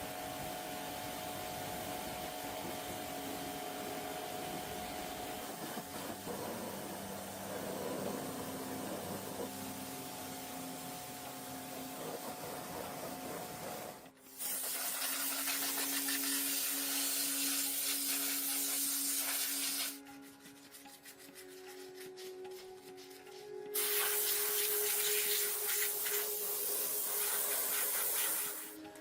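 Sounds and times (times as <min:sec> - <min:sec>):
abrasive hissing: 0:23.8 - 0:28.8.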